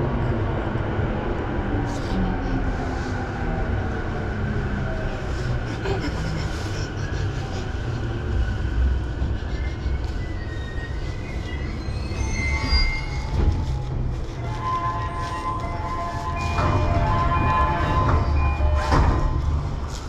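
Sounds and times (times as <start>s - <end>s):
train running gear rumble: 0.0s - 20.0s
high brake squeals: 9.5s - 19.6s.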